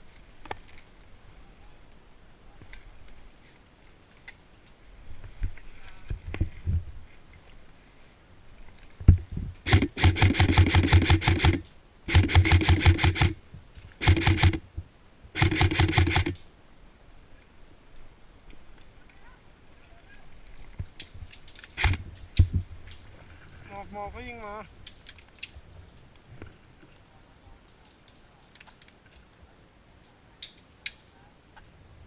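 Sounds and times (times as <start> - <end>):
airsoft rifle full-auto bursts: 9.6 - 13.4, 14.0 - 14.6, 15.4 - 16.4, 21.8 - 22.0.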